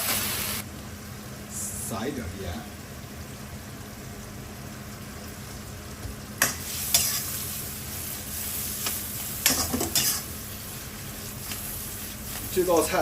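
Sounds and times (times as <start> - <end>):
prawns sizzling in hot oil: 0.0 - 13.0
stirring strokes against pan: 6.4 - 13.0.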